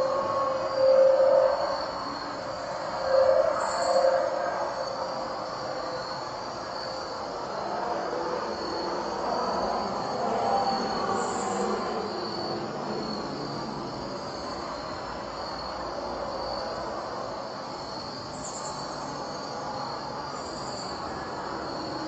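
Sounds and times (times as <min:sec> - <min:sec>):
crickets chirping: 0:00.0 - 0:22.0
high insect trills: 0:00.0 - 0:22.0
continuous broad rumble: 0:01.9 - 0:22.0.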